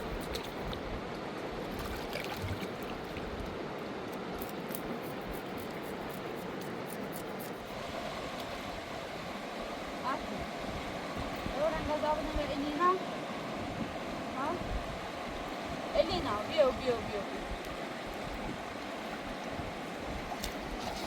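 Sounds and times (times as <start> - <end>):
river rushing: 7.7 - 21.0.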